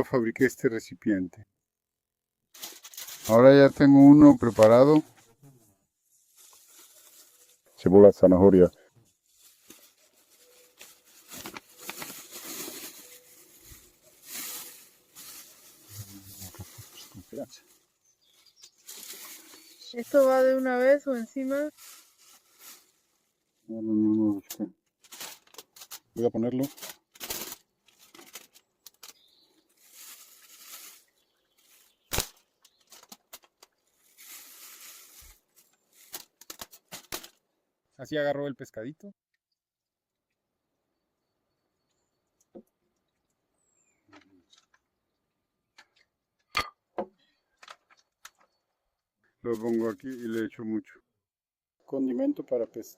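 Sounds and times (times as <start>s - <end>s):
aluminium foil crinkling: 2.5s - 5.0s, 6.1s - 7.9s, 9.0s - 23.6s, 25.0s - 37.4s, 49.5s - 50.5s
hands handling food items: 6.2s - 7.9s, 9.0s - 23.6s, 24.6s - 37.5s, 47.1s - 48.9s.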